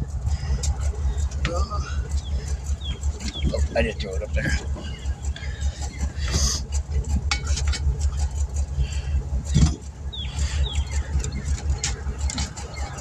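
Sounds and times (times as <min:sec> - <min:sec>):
vehicle engine idling: 0:00.0 - 0:13.0
metallic clicks: 0:10.9 - 0:13.0.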